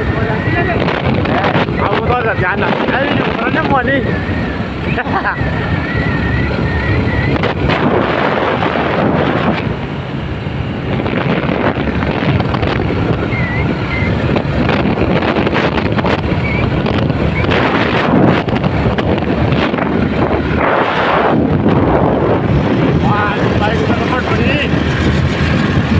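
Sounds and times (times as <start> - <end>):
motorcycle engine: 0.0 - 25.9
road noise: 0.0 - 25.9
wind buffeting microphone: 0.0 - 25.9.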